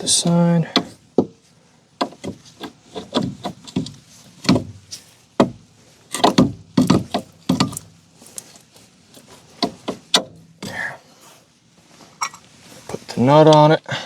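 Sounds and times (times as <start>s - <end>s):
tools and metal parts clunking: 0.2s - 1.4s, 2.0s - 10.8s, 12.1s - 12.5s.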